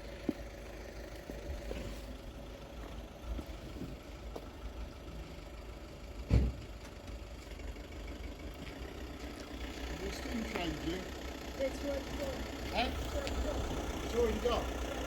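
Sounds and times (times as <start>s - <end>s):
engine idling: 0.0s - 15.0s
sharp thump: 6.3s - 6.6s.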